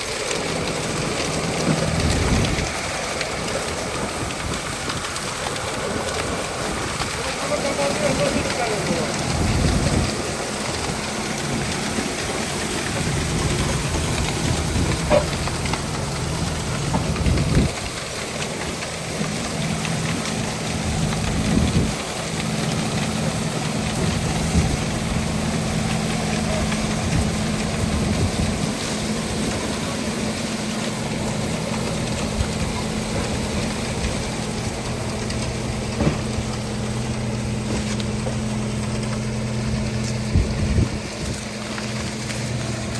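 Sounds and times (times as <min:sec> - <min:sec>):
tractor engine running: 0:00.0 - 0:42.9
harvesting machinery knocks: 0:35.9 - 0:36.5.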